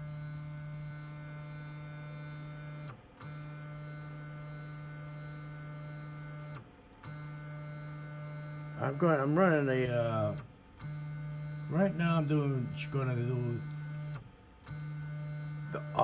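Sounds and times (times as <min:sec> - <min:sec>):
stepper motors humming: 0:11.4 - 0:16.0.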